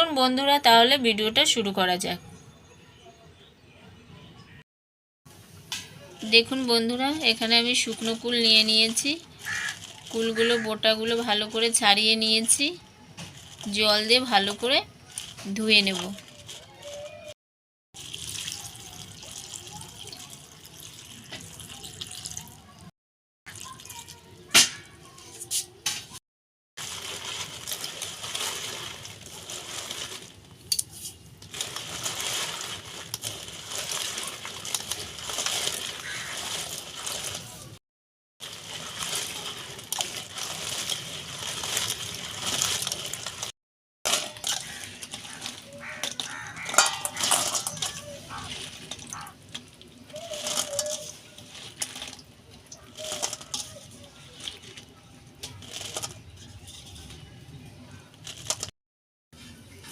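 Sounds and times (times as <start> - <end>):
water sloshing and splashing in a bowl: 6.4 - 11.8, 18.0 - 22.9, 23.5 - 26.2, 26.8 - 37.8, 38.4 - 43.5, 44.1 - 58.7
fruit clicking and rattling: 44.1 - 57.3
water sloshing: 44.1 - 57.3.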